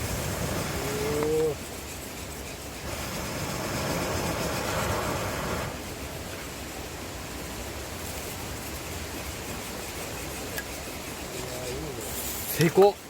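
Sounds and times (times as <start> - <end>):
fire rushing in a log: 0.0 - 6.2.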